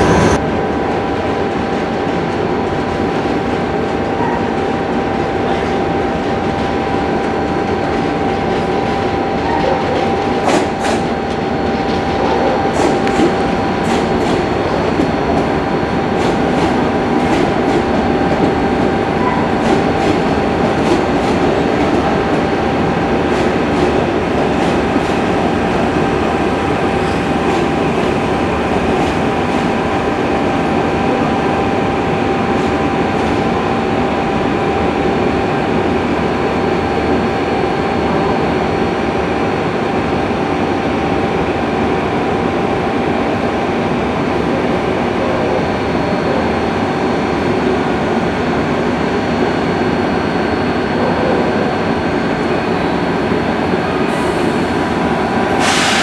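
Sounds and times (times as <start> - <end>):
train rumbling on rails: 0.0 - 56.0
rail-joint clicks: 9.4 - 14.5.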